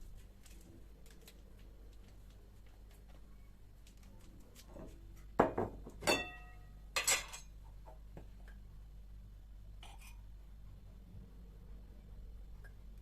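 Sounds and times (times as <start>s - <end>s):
dishes knocking and clinking: 5.4s - 7.5s.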